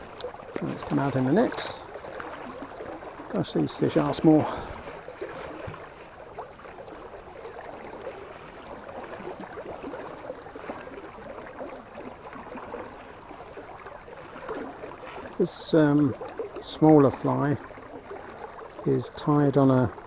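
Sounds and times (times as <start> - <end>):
river water running: 0.0 - 20.0
small splashes and ticks: 0.0 - 20.0.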